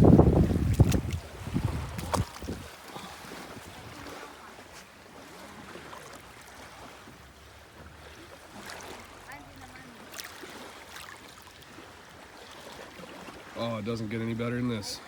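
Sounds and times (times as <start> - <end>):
wind on microphone: 0.0 - 2.8
small sea waves at shore: 0.0 - 15.0.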